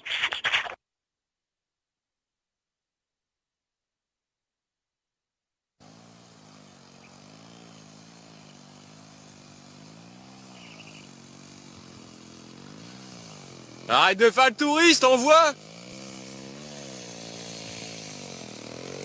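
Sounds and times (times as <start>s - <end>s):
moped engine running: 9.8s - 14.8s, 15.5s - 19.0s.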